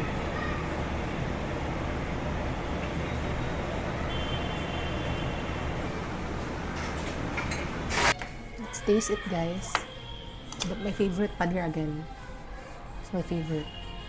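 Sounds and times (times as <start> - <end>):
mixer grinder running: 7.8 - 8.2.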